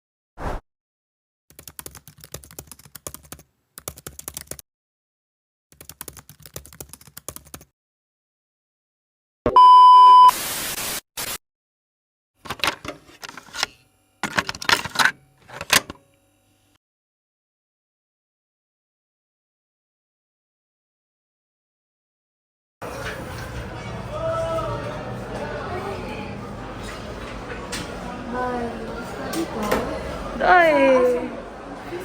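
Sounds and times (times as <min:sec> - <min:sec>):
keyboard typing: 0:01.5 - 0:04.6, 0:05.7 - 0:07.7
loud steady beep: 0:09.5 - 0:10.3
static hiss: 0:10.3 - 0:11.3.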